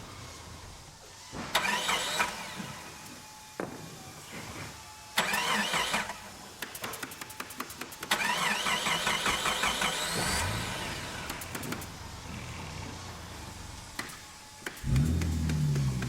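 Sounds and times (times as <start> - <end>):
car engine idling: 12.9 - 16.0.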